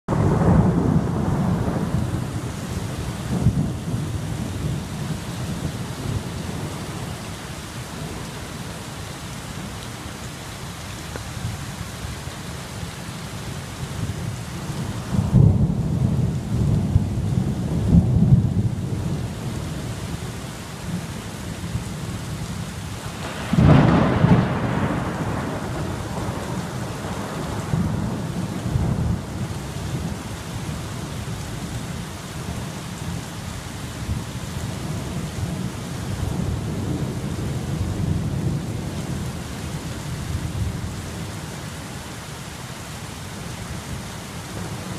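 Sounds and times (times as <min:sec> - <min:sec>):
rolling thunder rumble: 0:00.1 - 0:07.2, 0:13.9 - 0:31.2, 0:34.0 - 0:41.3
steady rain: 0:00.1 - 0:44.9
sharp thunderclap: 0:23.1 - 0:29.4.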